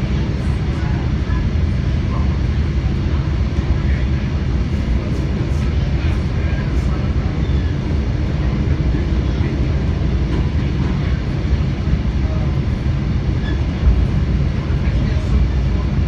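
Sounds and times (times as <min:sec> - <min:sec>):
train wheels rumbling on rails: 0:00.0 - 0:16.0
faint short squeaks: 0:13.4 - 0:13.7.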